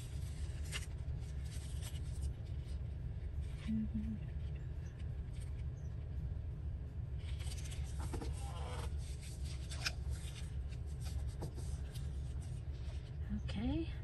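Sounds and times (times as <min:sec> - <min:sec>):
steady low hum: 0:00.0 - 0:14.0
paper scraps rustling: 0:07.2 - 0:12.4.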